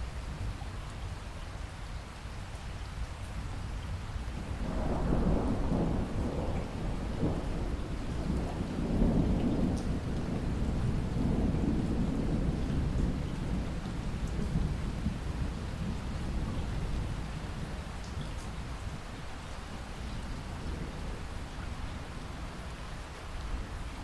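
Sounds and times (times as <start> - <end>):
steady rain: 0.0 - 24.0
distant thunder rolling: 4.6 - 17.9.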